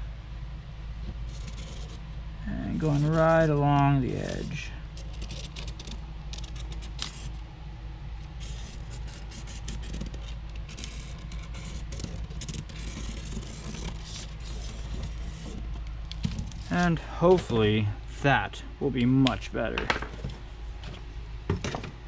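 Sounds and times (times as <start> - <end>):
steady low hum: 0.0 - 22.0
marker scratching on plastic: 1.0 - 7.4, 8.2 - 17.5.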